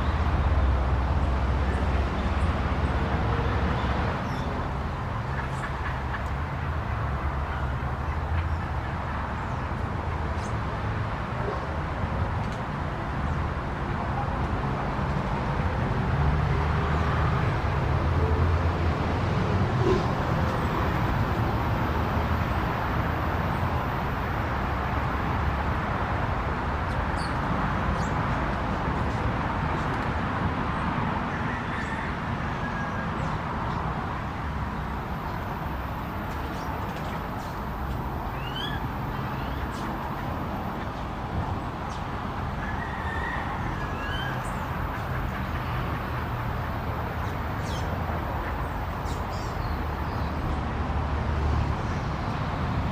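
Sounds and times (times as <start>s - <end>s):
bird chirps: 38.3s - 39.9s.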